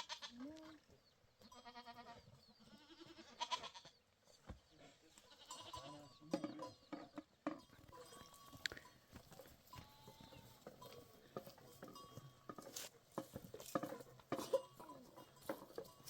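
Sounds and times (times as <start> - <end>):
goats bleating: 1.4 - 4.0, 5.2 - 6.2, 9.7 - 11.3.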